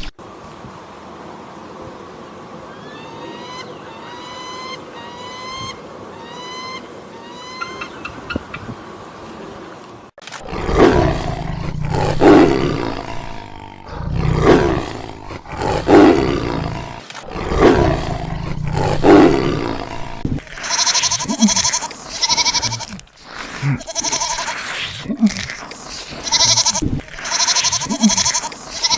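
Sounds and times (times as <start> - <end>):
big cat roaring: 10.4 - 20.4
animal bleating: 20.5 - 24.7, 26.1 - 28.9.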